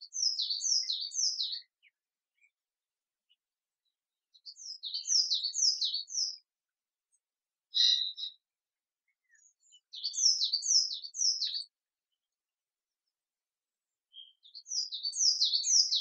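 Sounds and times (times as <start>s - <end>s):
songbird singing: 0.0s - 2.6s, 3.2s - 16.0s.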